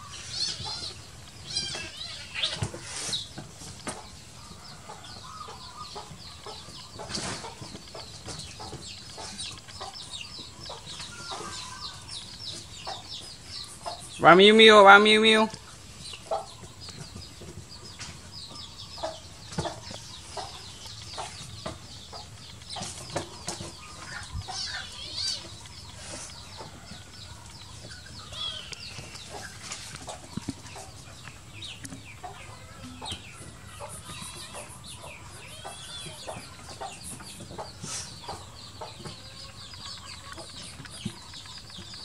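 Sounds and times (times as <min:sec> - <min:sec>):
rustles: 0:00.0 - 0:04.4, 0:06.7 - 0:14.2, 0:19.4 - 0:32.4
birds chirping: 0:00.0 - 0:42.0.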